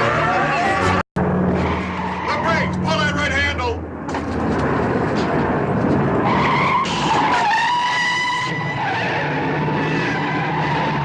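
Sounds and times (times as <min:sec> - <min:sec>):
loud rushing rumble: 0:00.8 - 0:06.3.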